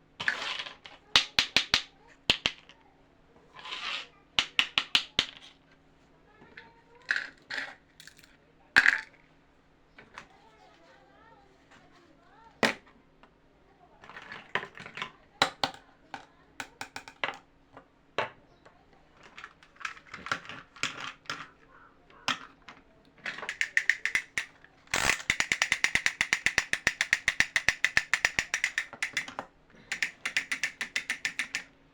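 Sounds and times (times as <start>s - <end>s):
sharp clicks and taps: 22.1s - 31.7s
ratchet-like clicking: 23.4s - 31.7s.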